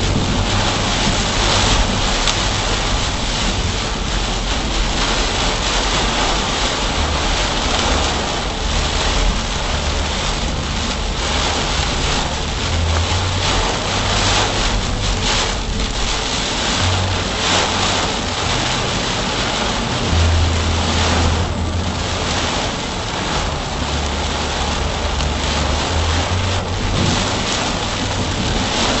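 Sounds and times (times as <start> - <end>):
car road noise: 0.0 - 29.0
heavy rain on car: 0.0 - 29.0.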